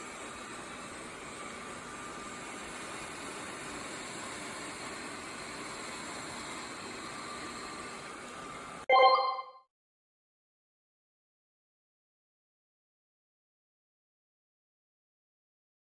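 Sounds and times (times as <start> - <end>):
robot vacuum suction fan: 0.0 - 8.8.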